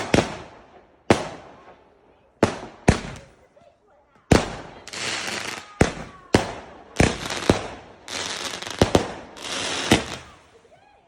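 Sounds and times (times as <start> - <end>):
fireworks bangs: 0.0 - 1.8, 2.4 - 3.5, 4.2 - 10.6
fireworks crackling and hissing: 0.0 - 11.0.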